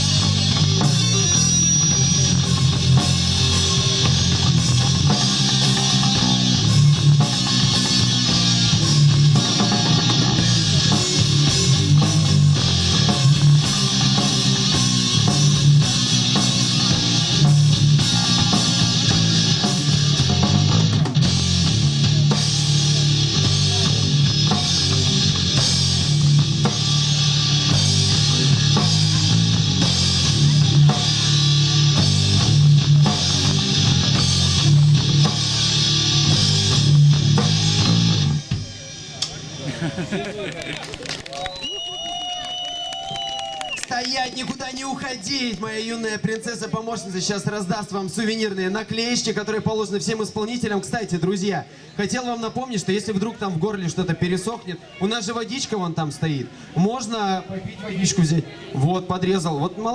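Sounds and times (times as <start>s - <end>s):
live rock band playing: 0.0s - 39.8s.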